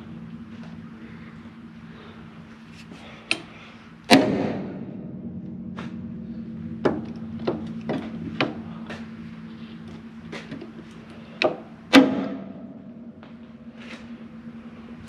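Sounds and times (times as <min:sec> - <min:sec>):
steady low hum: 0:00.0 - 0:15.0
loud ringing slam: 0:04.1 - 0:10.4, 0:11.0 - 0:15.0.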